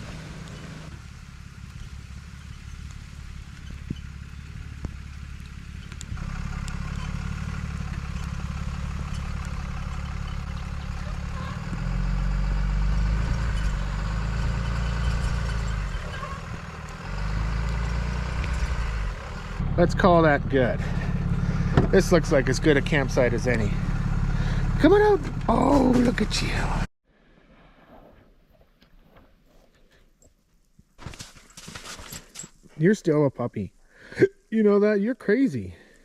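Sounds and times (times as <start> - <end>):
pickup truck engine running: 0.0 - 26.9.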